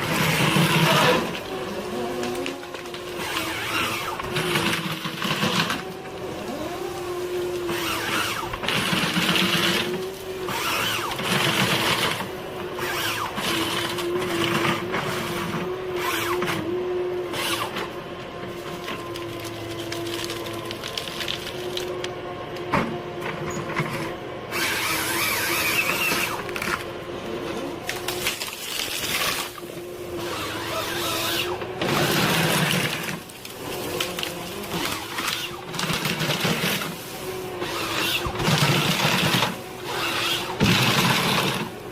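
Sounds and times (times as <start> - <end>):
forestry machine engine whine: 0.0 - 41.9.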